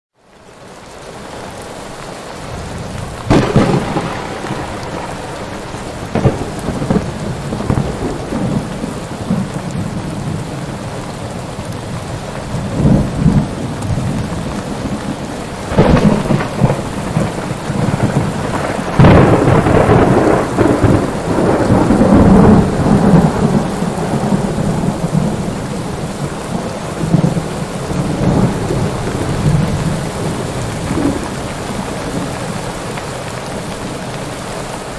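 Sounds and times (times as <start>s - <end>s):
heavy rain: 0.2s - 34.9s
rolling thunder rumble: 2.4s - 32.7s
thunder cracks: 2.5s - 10.5s, 12.6s - 32.4s.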